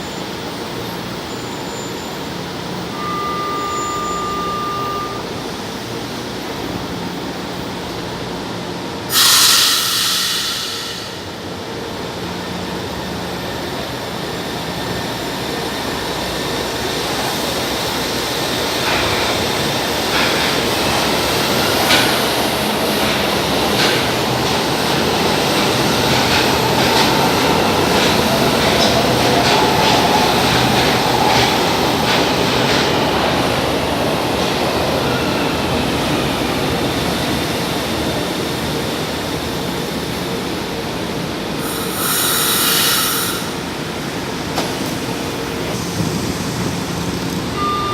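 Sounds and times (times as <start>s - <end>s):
train running through station: 0.0s - 47.9s
loud hiss: 9.1s - 11.5s, 41.4s - 44.2s.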